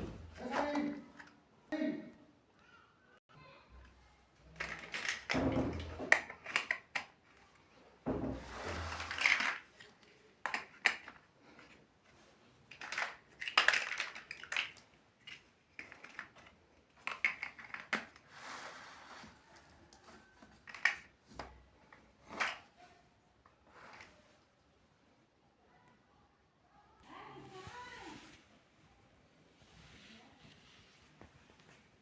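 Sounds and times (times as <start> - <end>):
plastic bricks clicking: 4.5 - 7.4, 9.0 - 11.8, 12.7 - 18.2, 20.5 - 21.5.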